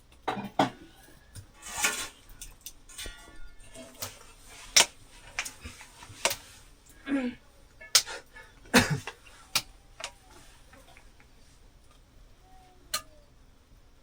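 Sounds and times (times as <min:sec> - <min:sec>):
dishes and utensils clinking: 0:00.2 - 0:11.2.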